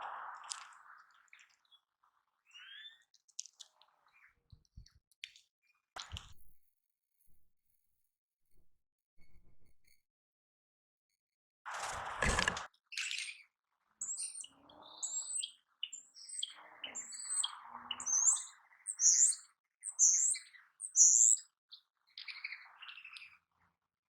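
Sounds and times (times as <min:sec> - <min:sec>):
small birds chirping: 0:00.4 - 0:06.4, 0:11.8 - 0:23.7.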